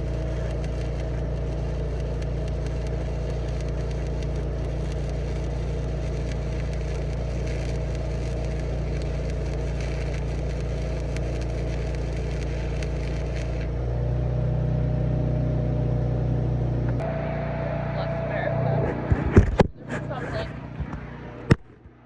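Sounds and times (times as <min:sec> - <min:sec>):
crackling hiss: 0:00.0 - 0:13.8
engine running: 0:00.0 - 0:22.0.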